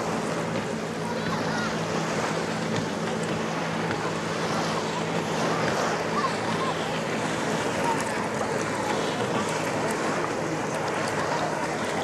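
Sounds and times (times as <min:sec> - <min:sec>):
boat engine humming: 0:00.0 - 0:12.0
water rushing: 0:00.0 - 0:12.0
wind: 0:00.0 - 0:12.0.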